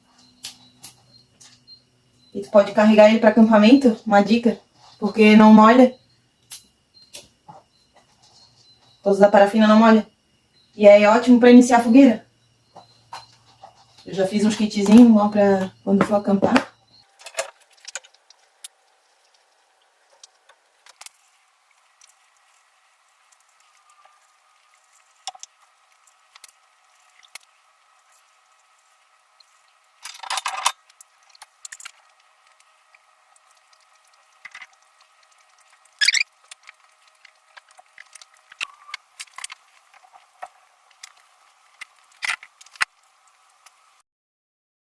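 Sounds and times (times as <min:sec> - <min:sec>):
faint steady whine: 0:00.0 - 0:44.0
fire crackling: 0:16.6 - 0:30.1, 0:30.7 - 0:44.0.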